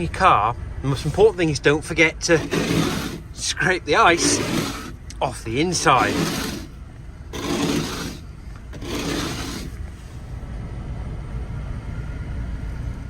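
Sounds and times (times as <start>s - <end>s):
ice scraper scraping car window: 1.0s - 1.3s, 2.0s - 10.0s.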